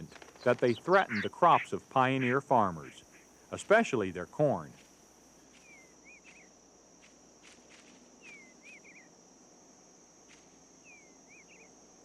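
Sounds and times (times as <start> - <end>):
songbird singing: 0.0 - 4.9, 5.5 - 6.6, 8.1 - 9.2, 10.8 - 11.8
high insect drone: 0.0 - 12.0.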